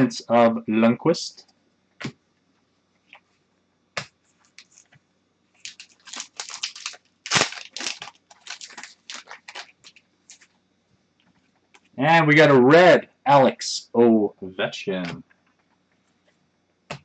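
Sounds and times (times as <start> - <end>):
packaging crinkling and scraping: 4.4 - 4.9, 5.6 - 10.6.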